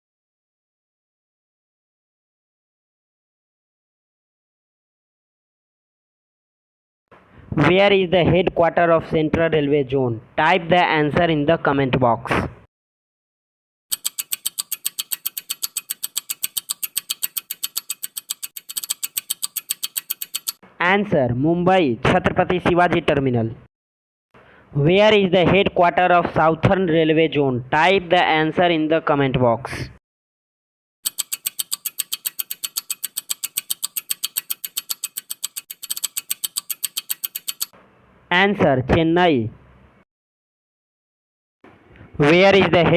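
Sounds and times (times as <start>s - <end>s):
rapid clock-like ticking: 13.9s - 20.6s, 31.0s - 37.7s.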